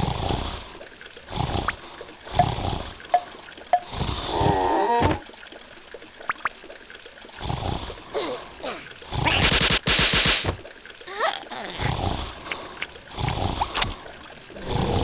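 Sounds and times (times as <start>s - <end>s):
cartoon squeaks and clicks: 9.2s - 9.7s
warbling cartoon cry: 11.1s - 12.0s.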